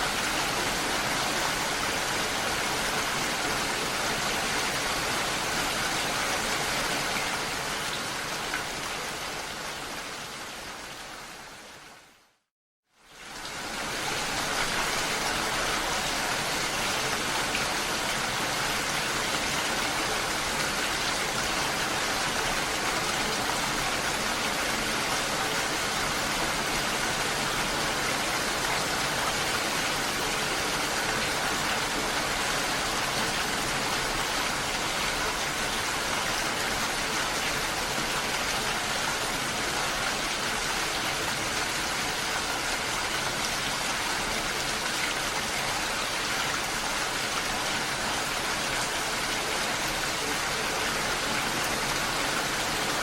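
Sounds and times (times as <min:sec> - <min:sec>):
water rushing: 0:13.3 - 0:53.0.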